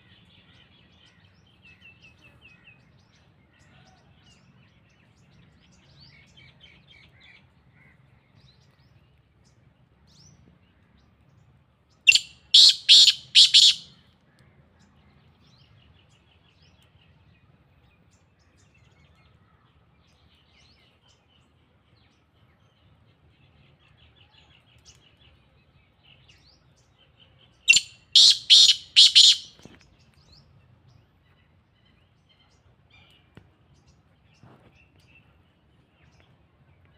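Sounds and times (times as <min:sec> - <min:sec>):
bird calling harsh notes: 0:12.1 - 0:13.9, 0:27.7 - 0:29.6.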